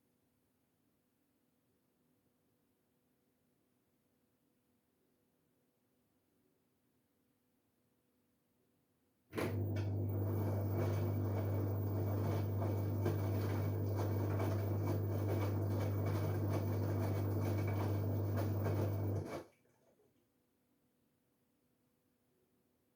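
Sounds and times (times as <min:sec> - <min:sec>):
washing machine humming and churning: 0:09.4 - 0:19.9.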